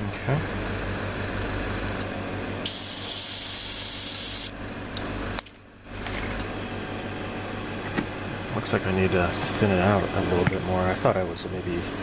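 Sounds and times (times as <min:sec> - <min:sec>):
steady low hum: 0:00.0 - 0:12.0
airbrush spraying paint: 0:02.6 - 0:04.5.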